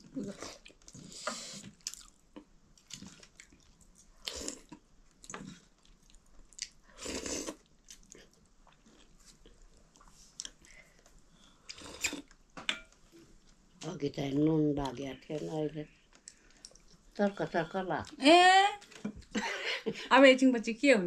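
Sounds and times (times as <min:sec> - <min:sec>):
person chewing food: 0:00.3 - 0:12.4, 0:16.1 - 0:17.2.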